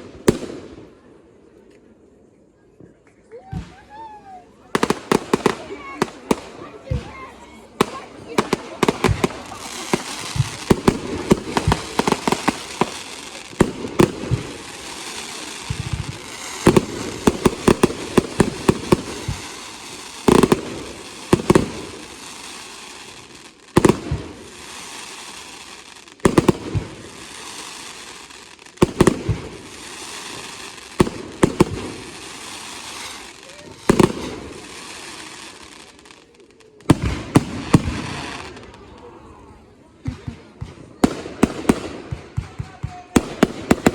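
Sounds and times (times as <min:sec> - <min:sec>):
fireworks bangs: 0:00.0 - 0:01.1, 0:03.5 - 0:39.2, 0:40.0 - 0:43.9
fireworks hiss: 0:04.8 - 0:38.9.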